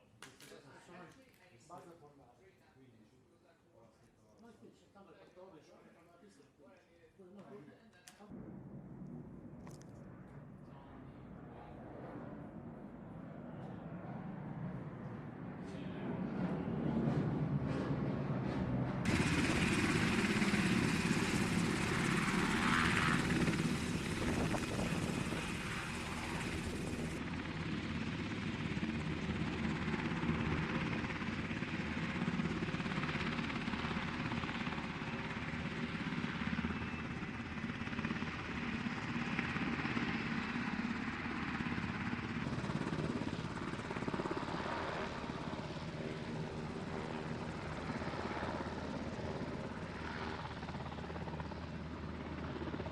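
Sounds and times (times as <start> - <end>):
military aircraft engine rumble: 14.8 - 52.9.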